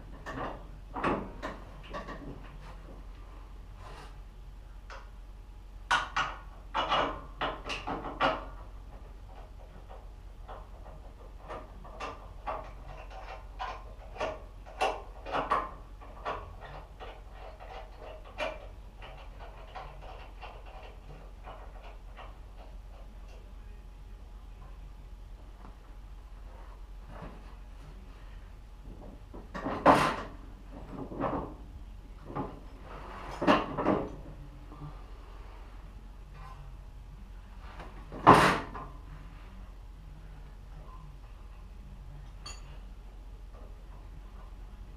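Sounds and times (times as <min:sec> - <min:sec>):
objects knocking and clunking: 0:00.0 - 0:03.1, 0:05.8 - 0:23.4, 0:28.8 - 0:34.5, 0:37.8 - 0:39.0
faint steady hum: 0:00.0 - 0:44.9
tools and parts clattering: 0:42.3 - 0:42.8.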